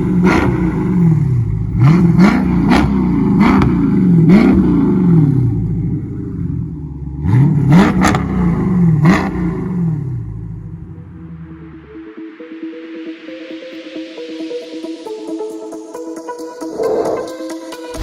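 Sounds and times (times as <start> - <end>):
exhaust crack: 0.0 - 10.9
car engine revving: 0.0 - 11.8, 16.6 - 18.0.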